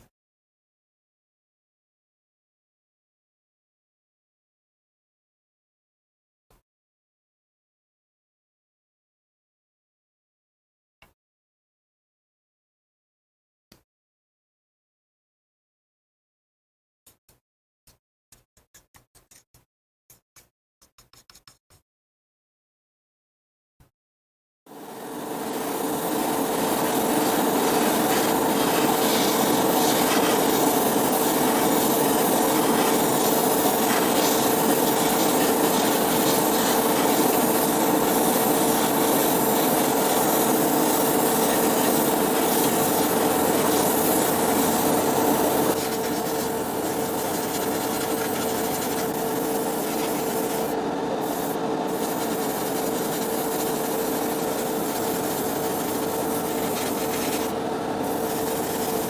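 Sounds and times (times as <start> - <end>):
small tool sanding: 24.9 - 59.0.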